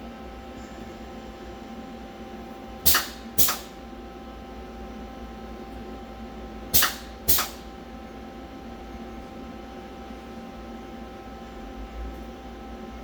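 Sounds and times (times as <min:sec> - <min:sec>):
air blast hissing: 0:02.9 - 0:03.8, 0:06.7 - 0:07.6.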